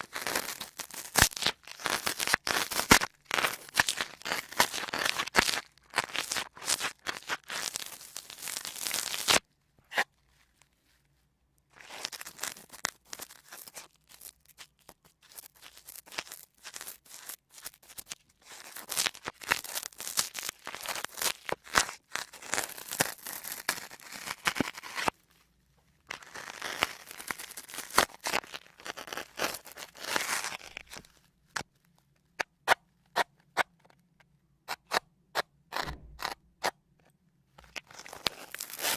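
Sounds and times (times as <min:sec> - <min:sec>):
sponges crackling and crunching: 0:00.0 - 0:09.4, 0:11.7 - 0:25.4, 0:26.0 - 0:32.5, 0:37.6 - 0:38.9.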